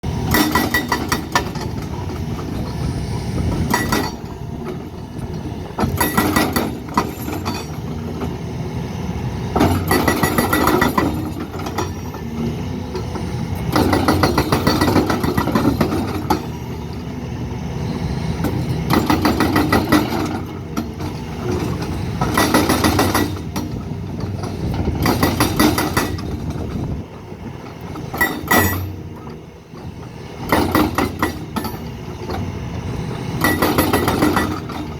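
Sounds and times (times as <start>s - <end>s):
heavy construction machinery: 0.0s - 34.9s.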